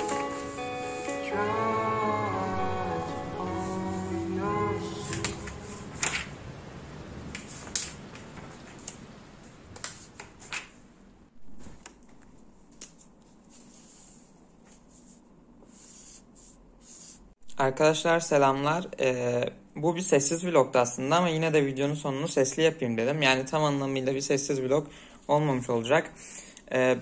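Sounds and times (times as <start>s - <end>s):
background music: 0.0s - 6.7s.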